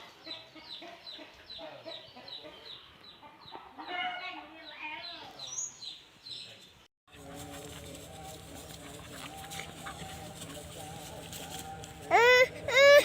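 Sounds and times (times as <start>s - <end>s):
chickens clucking: 0.0s - 4.1s, 7.1s - 13.0s.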